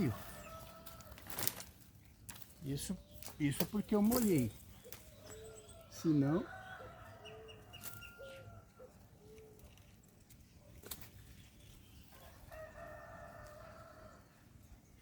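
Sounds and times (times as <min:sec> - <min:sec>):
rooster crowing: 0:05.5 - 0:09.0, 0:12.2 - 0:14.3.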